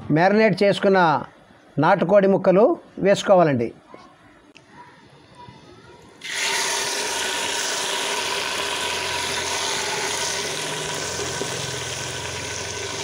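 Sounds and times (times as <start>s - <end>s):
chicken sizzling in hot oil: 6.2s - 13.0s.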